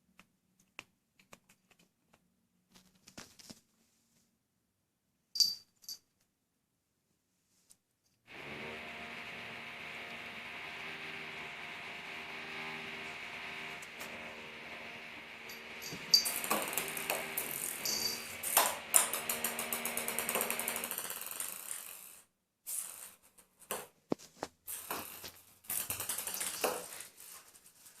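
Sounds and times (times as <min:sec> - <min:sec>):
ping-pong ball bouncing on floor: 0:24.8 - 0:27.0.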